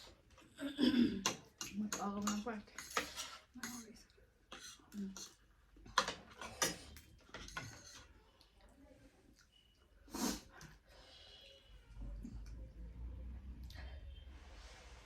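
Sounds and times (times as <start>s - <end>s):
slurping and smacking noodles: 10.1s - 10.8s.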